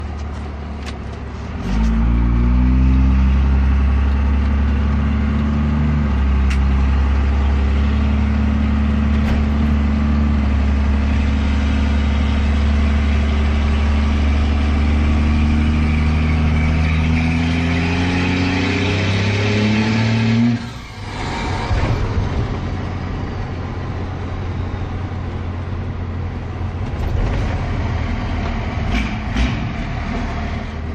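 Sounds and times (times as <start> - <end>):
diesel engine pulling under load: 19.1 - 30.9.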